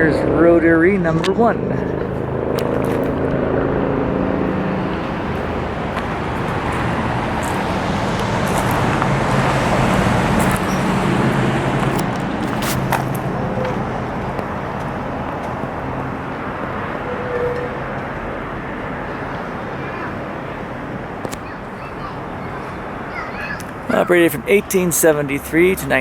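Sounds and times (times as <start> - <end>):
passing vehicle engine and tyres: 0.0 - 26.0.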